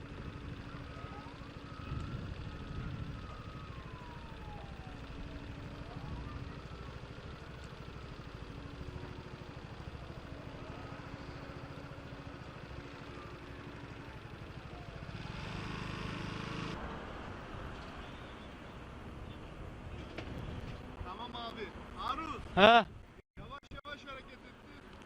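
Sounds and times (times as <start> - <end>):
faint emergency siren wailing: 0.0 - 19.3
vehicle engines rumbling: 0.0 - 23.2.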